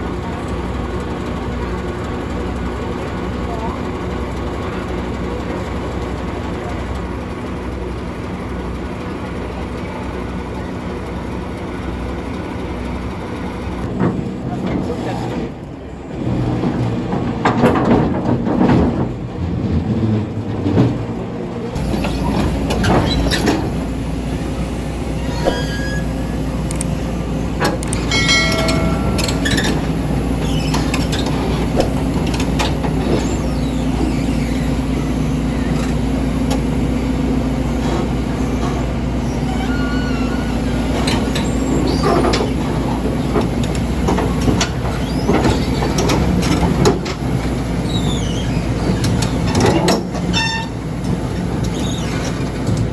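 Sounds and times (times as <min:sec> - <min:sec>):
heavy diesel machinery running: 0:00.0 - 0:52.9
brief squeals: 0:25.2 - 0:26.4, 0:39.2 - 0:42.6, 0:47.8 - 0:49.0
metal clanks: 0:27.6 - 0:33.3.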